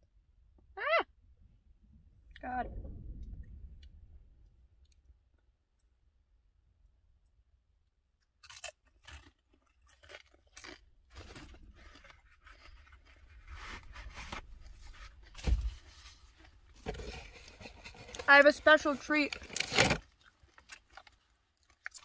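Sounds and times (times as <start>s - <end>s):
crunching and chewing chips: 8.2s - 22.0s.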